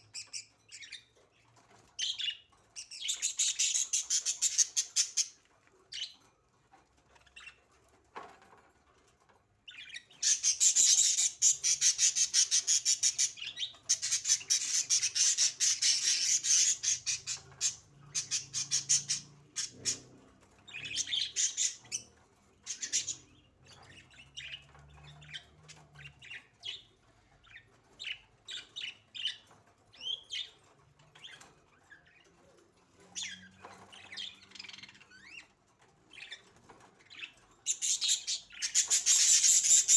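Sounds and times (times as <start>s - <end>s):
budgerigars chirping: 2.0s - 5.4s, 9.7s - 20.0s, 20.7s - 29.4s, 37.1s - 39.9s.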